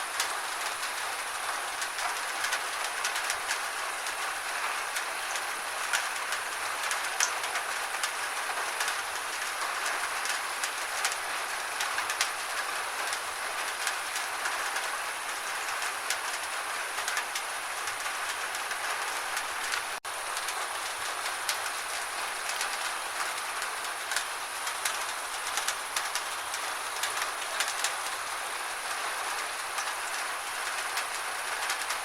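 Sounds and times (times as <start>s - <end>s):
gentle rain falling: 0.0s - 32.0s.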